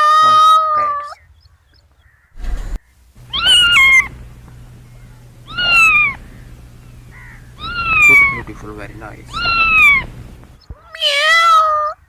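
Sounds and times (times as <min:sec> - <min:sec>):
short burst of noise: 0:02.4 - 0:02.9
kitten meowing: 0:03.3 - 0:04.1, 0:05.4 - 0:06.2, 0:07.1 - 0:08.5, 0:09.3 - 0:12.0.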